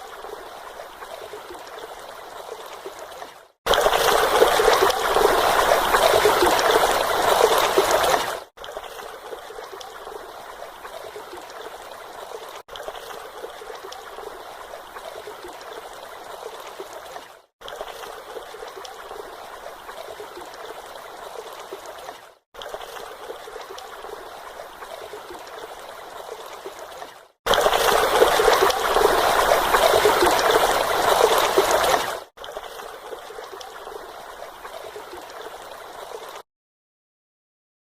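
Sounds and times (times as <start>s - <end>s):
stream and small waterfall running: 0.0s - 36.4s.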